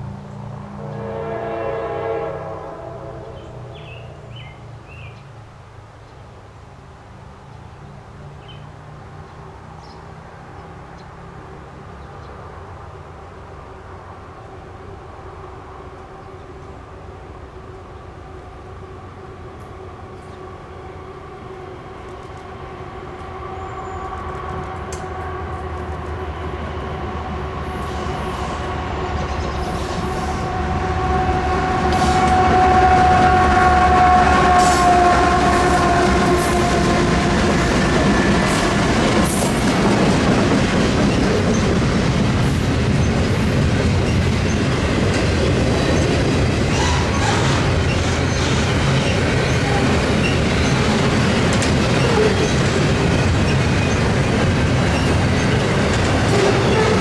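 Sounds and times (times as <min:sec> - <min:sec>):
train rumble and rail clicks: 0:00.0 - 0:57.0
locomotive engine tone: 0:14.6 - 0:42.4, 0:43.0 - 0:57.0.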